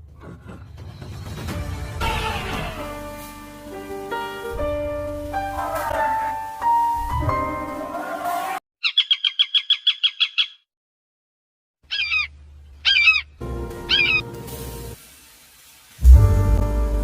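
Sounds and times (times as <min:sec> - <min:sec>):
background music: 0:00.0 - 0:08.6, 0:13.4 - 0:15.0, 0:16.0 - 0:17.0
bird singing fast trill: 0:08.8 - 0:10.6, 0:11.9 - 0:13.3, 0:13.9 - 0:14.2
bird call rising and falling: 0:08.8 - 0:10.7, 0:11.9 - 0:14.2.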